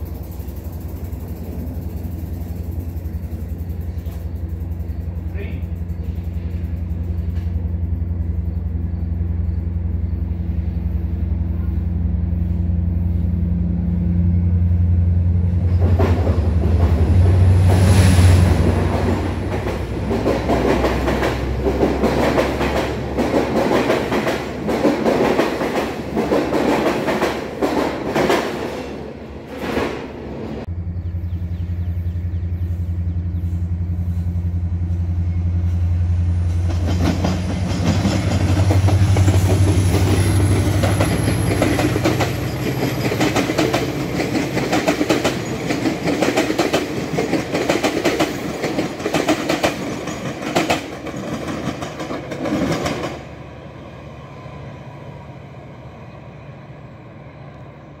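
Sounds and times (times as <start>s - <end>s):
diesel locomotive engine hum: 0.0s - 58.0s
train wheels clickety-clack: 15.6s - 30.1s, 35.7s - 53.4s.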